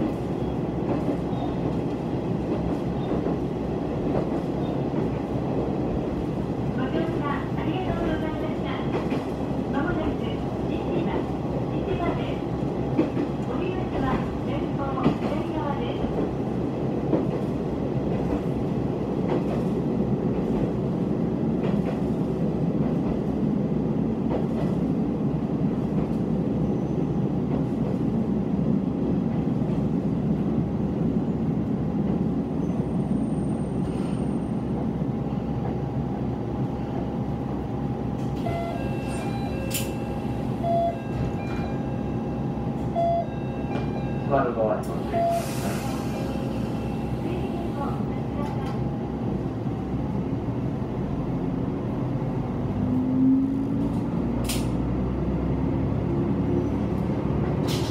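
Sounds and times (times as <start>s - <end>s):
diesel railcar running: 0.0s - 57.9s.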